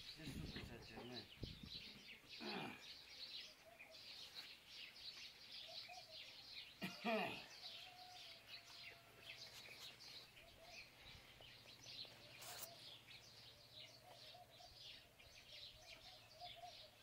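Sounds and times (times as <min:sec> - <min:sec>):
small birds chirping: 0:00.0 - 0:17.0
brief rustle: 0:12.2 - 0:12.8.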